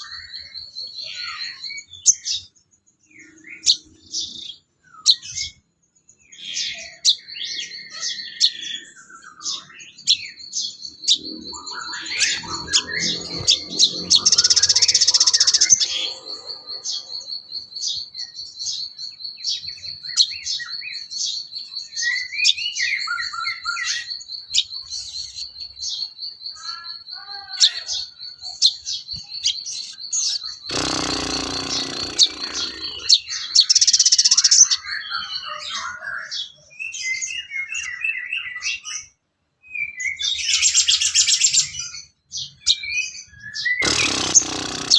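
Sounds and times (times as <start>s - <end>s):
bird singing high trill: 0.0s - 38.6s
loud noisy burst: 30.7s - 33.1s, 43.8s - 44.9s.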